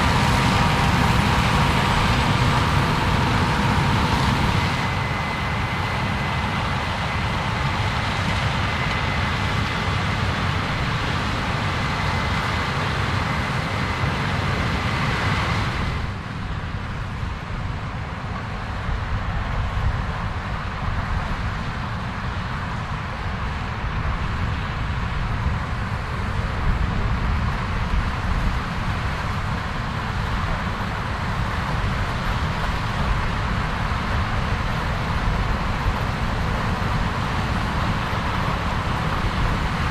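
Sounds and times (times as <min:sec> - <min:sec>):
thin steady whine: 0:00.0 - 0:17.0
farm machinery engines running: 0:00.0 - 0:39.9.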